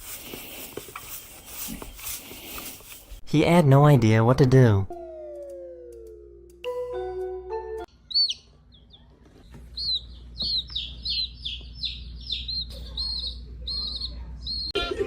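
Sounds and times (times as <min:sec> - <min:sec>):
bird chirping: 0:07.9 - 0:14.8.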